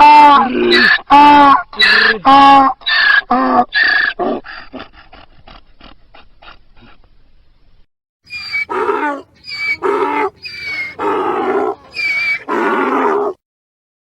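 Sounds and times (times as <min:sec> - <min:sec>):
donkey braying: 0:00.2 - 0:04.3, 0:08.3 - 0:13.4.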